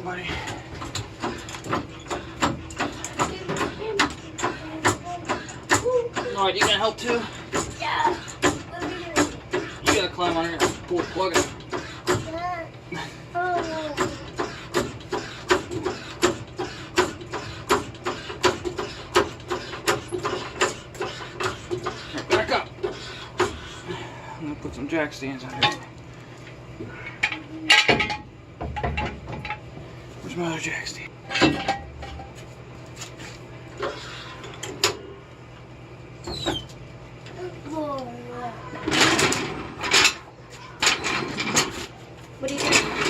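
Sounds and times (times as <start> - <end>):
jack stands clanking: 27.0 - 29.7, 31.2 - 32.4, 38.8 - 43.0.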